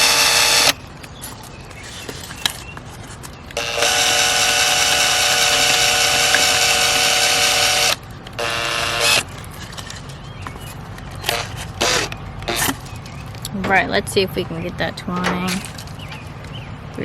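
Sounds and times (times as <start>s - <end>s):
electric drill drilling gourd: 0.0s - 0.8s, 3.6s - 9.3s, 11.3s - 12.7s.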